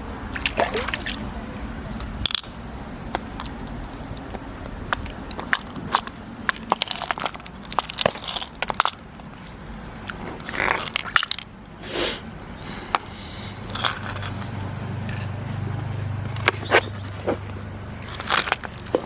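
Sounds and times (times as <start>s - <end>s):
clam shells knocking and scraping: 2.0s - 11.5s, 12.4s - 19.0s
short hissing bursts: 11.8s - 12.3s.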